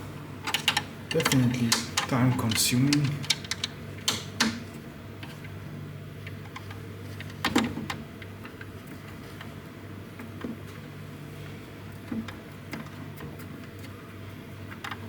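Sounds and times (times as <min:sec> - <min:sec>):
sharp clicks and knocks: 0:00.5 - 0:04.6.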